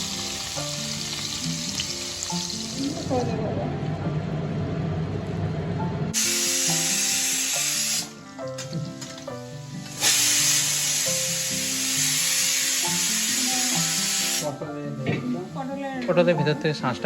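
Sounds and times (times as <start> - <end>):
prawns sizzling in hot oil: 0.0 - 3.2, 6.2 - 14.6
background music: 0.0 - 17.0.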